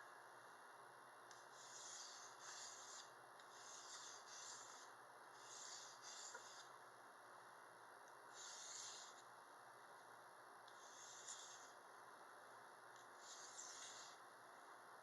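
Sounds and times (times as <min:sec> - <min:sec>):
knife scraping on sharpener: 0:01.6 - 0:06.7, 0:08.4 - 0:09.2, 0:13.2 - 0:14.2.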